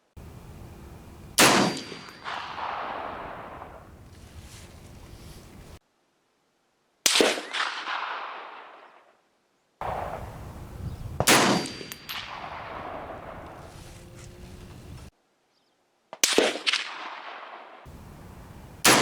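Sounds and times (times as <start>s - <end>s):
rifle shots with echo: 0.2s - 4.3s, 7.1s - 8.9s, 9.8s - 14.2s, 16.2s - 19.0s.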